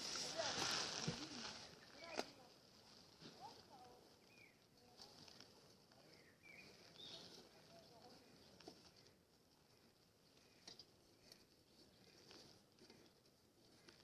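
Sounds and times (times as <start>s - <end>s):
faint bird chirps: 4.1s - 4.7s, 6.0s - 7.9s.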